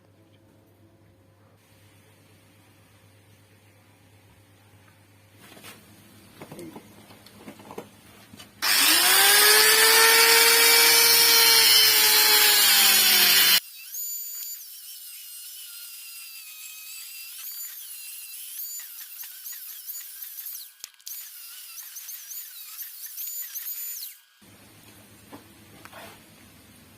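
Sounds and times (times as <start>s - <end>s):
electric power tool whining: 8.6s - 24.4s.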